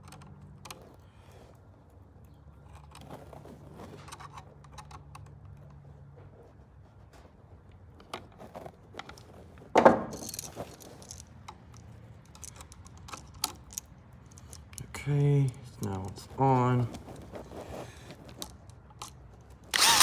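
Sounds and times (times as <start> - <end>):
clicks and rattles of tools: 10.0 - 17.2, 17.8 - 20.0.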